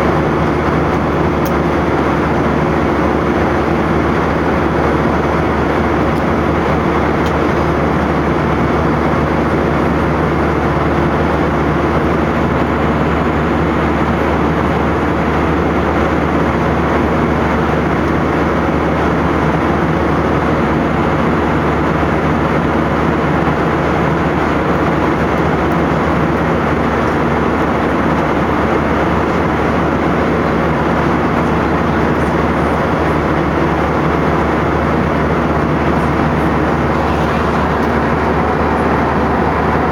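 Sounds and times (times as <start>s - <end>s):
jet engine drone: 0.0s - 39.9s
low hum: 32.2s - 39.9s
rushing air: 33.7s - 39.9s.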